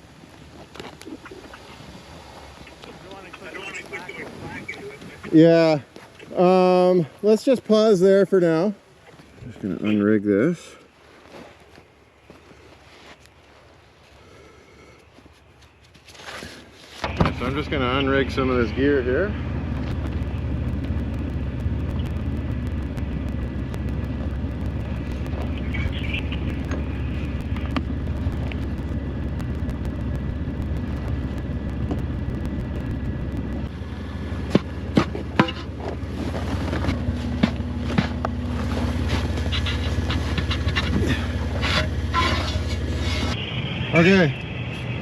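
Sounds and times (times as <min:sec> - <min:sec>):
vehicle engine idling: 0:17.0 - 0:45.0.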